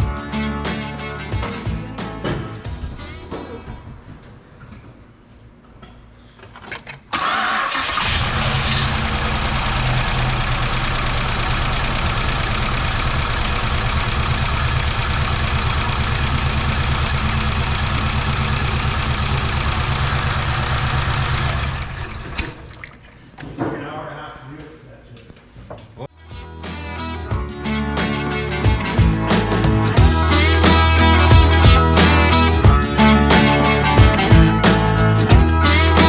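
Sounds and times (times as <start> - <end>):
car engine cranking and running: 7.1 - 22.9.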